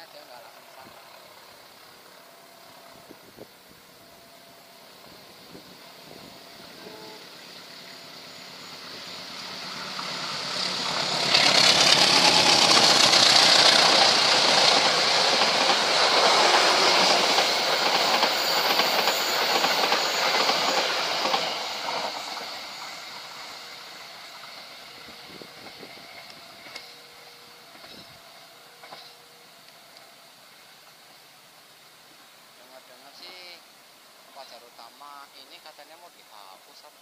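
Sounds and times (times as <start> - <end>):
passenger train passing: 0.0 - 37.0.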